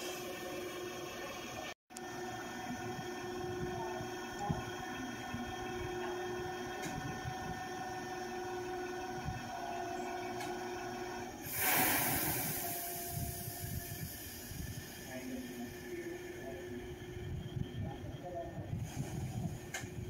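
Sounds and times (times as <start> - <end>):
electric train humming: 0.0 - 20.0
loud hiss of released air: 11.4 - 14.8.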